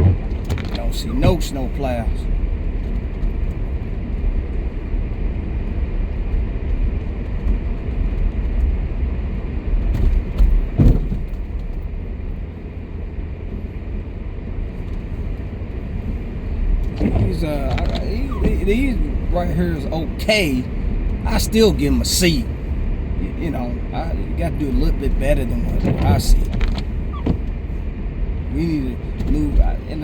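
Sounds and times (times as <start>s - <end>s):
car engine and tyre rumble: 0.0s - 30.0s
short thump: 10.0s - 11.4s.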